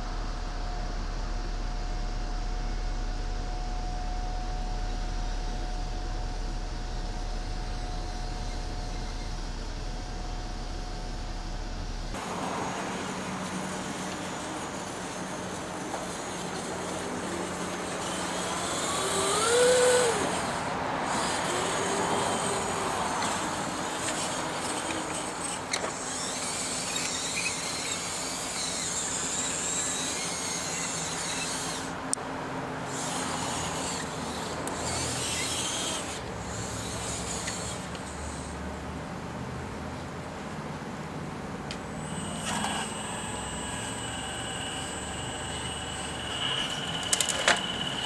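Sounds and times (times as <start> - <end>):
high whir and rubbing: 4.9 - 38.9, 41.9 - 48.0
small electric motors whining: 6.7 - 9.8, 12.1 - 39.2, 41.7 - 48.0.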